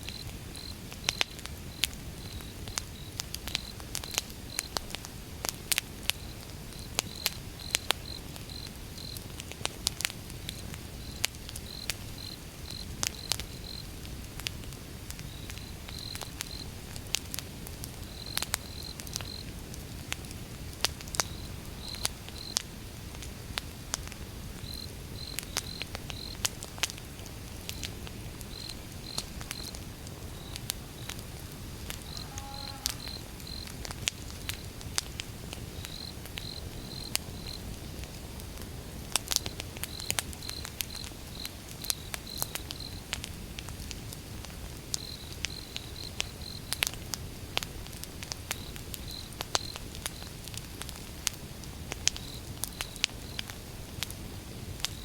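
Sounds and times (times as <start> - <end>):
wood fire crackling and popping: 0.0 - 55.0
crickets chirping: 0.1 - 4.7, 6.2 - 9.2, 11.0 - 13.9, 15.3 - 16.7, 18.0 - 19.5, 21.2 - 22.6, 24.6 - 26.4, 27.7 - 34.8, 35.7 - 37.7, 45.0 - 46.7.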